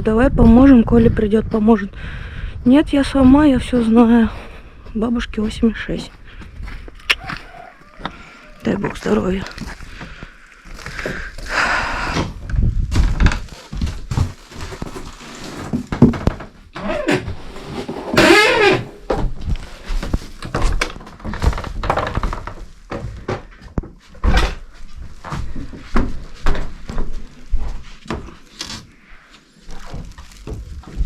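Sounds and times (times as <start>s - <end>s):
footsteps indoors: 5.4s - 11.5s, 19.1s - 31.0s.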